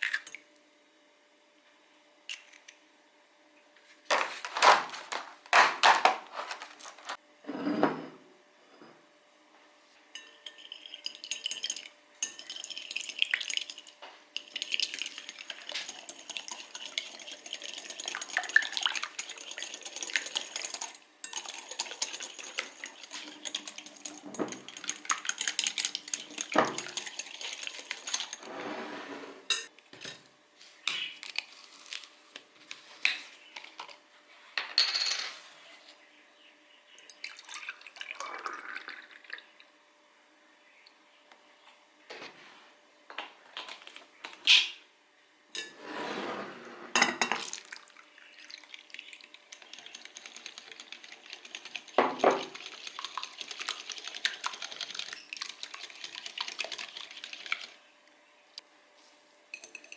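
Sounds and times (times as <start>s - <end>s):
dishes and cutlery clinking: 10.1s - 28.5s, 46.9s - 47.5s.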